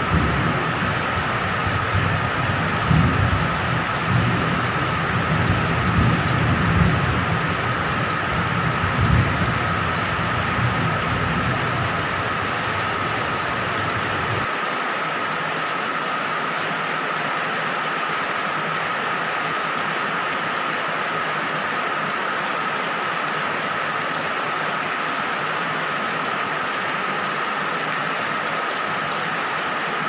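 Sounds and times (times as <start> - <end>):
distant thunder rumbling: 0.0 - 14.5
heavy rain: 0.0 - 30.0.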